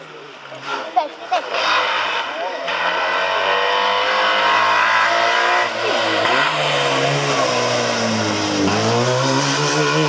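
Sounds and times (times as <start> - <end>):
rally car engine revving past: 1.4 - 10.0.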